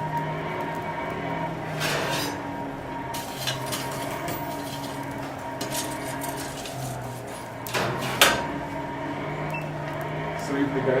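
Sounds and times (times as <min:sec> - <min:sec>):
steady low hum: 0:00.0 - 0:11.0
metal objects clinking: 0:03.2 - 0:06.9.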